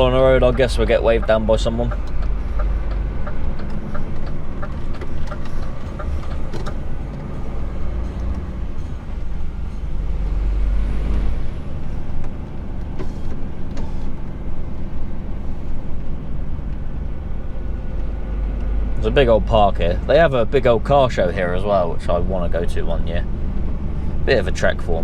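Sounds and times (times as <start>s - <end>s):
lorry engine running: 0.0s - 25.0s
light regular ticking: 0.2s - 8.9s.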